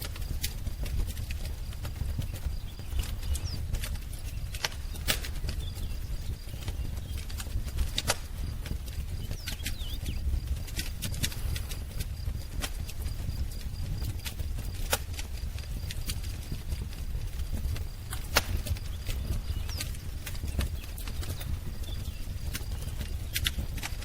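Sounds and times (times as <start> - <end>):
wood fire crackling and popping: 0.0 - 24.0
faint bird chirps: 1.8 - 11.8, 18.5 - 23.8.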